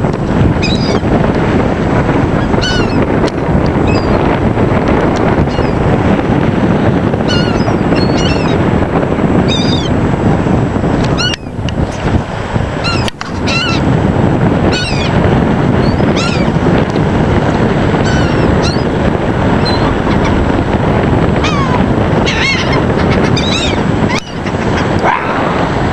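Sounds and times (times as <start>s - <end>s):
loud steady low rushing noise: 0.0s - 25.9s
gulls calling: 0.5s - 1.1s, 2.3s - 3.1s, 3.8s - 4.3s, 5.3s - 5.9s, 6.9s - 8.7s, 9.4s - 10.0s, 11.1s - 12.1s, 12.8s - 14.0s, 14.6s - 16.6s, 17.8s - 20.6s, 21.3s - 25.9s.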